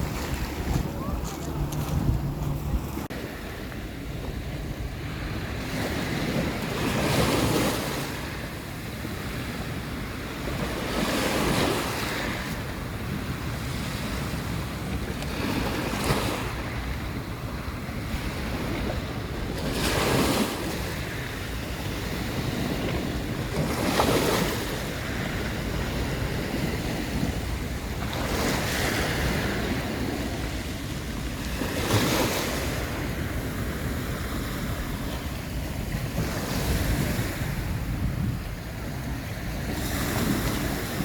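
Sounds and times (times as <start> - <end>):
sea waves breaking on shore: 0.0 - 41.0
wind rumble on microphone: 0.0 - 41.0.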